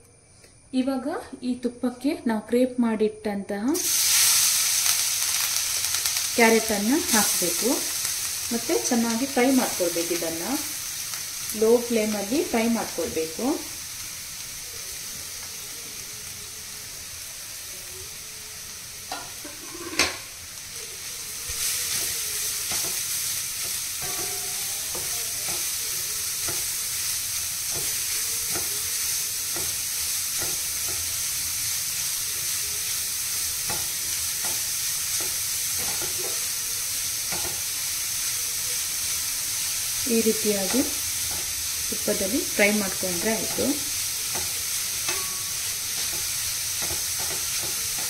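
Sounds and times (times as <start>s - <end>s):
carrots sizzling in pan: 3.6s - 48.0s
spatula scraping metal pan: 19.1s - 20.3s.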